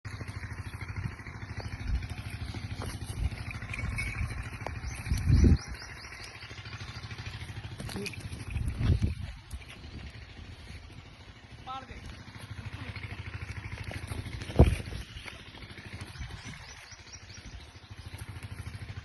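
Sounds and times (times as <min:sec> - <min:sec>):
small engine puttering: 0:00.1 - 0:19.0
bird chirping: 0:00.2 - 0:07.7, 0:13.9 - 0:19.0.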